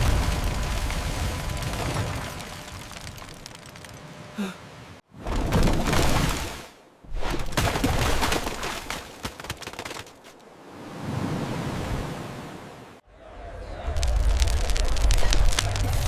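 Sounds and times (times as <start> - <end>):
rushing rumble: 13.1 - 16.0.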